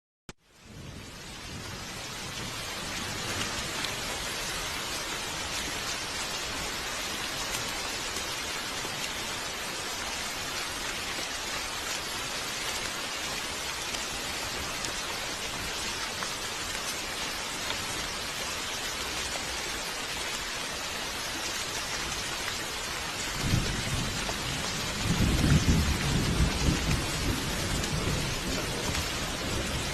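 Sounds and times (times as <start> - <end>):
heavy rain falling: 0.4 - 29.9
thunder rumbling: 23.1 - 29.9.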